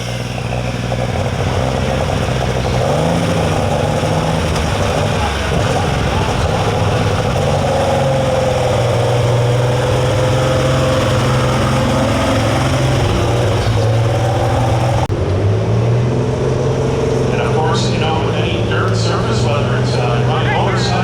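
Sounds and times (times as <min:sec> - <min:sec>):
tractor engine running hard: 0:00.0 - 0:21.0.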